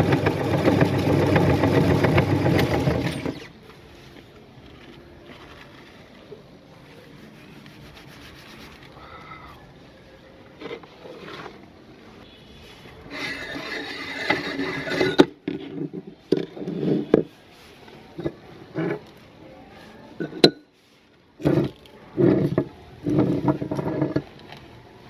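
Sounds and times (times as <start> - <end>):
meat grinder crunching chips: 0.0 - 3.4.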